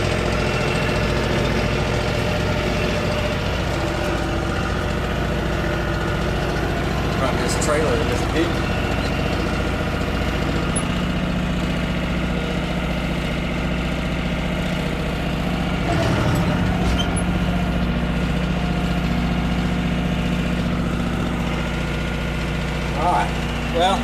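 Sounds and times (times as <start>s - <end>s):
tractor diesel engine idling: 0.0s - 24.0s.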